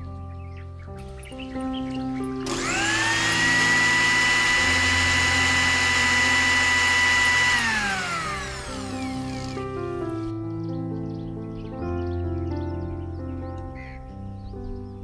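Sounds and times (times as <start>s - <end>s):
mixer grinder motor whining: 2.4s - 10.3s.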